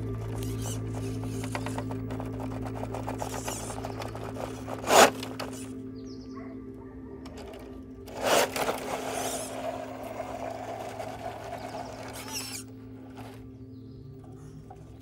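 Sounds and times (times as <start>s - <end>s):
small electric motor whirring: 0.0s - 5.8s, 7.3s - 13.4s.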